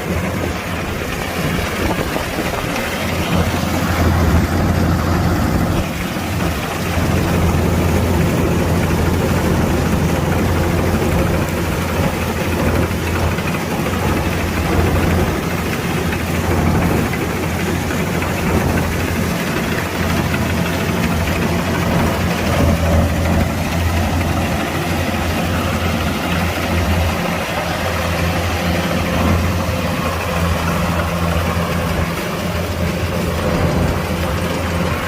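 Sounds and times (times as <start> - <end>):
combine harvester diesel engine: 0.0 - 35.0.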